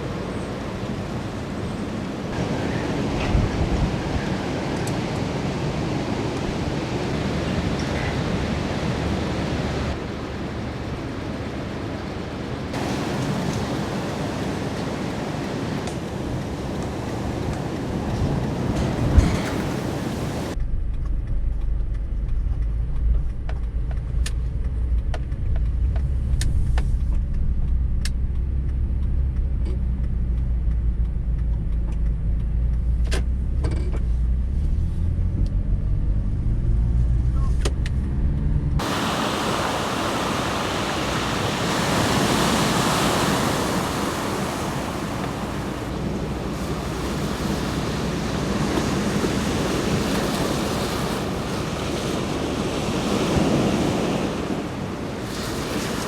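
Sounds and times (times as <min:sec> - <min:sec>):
surf: 0:00.0 - 0:20.6, 0:38.8 - 0:56.0
roaring typhoon wind: 0:00.0 - 0:20.9, 0:38.0 - 0:56.0
deep rumble inside car: 0:20.5 - 0:38.8.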